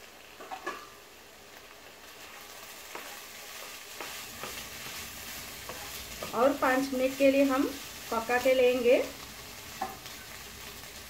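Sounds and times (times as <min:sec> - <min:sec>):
pumpkin sizzling in a pan: 0:00.0 - 0:11.0
spatula scraping a pan: 0:02.1 - 0:08.5.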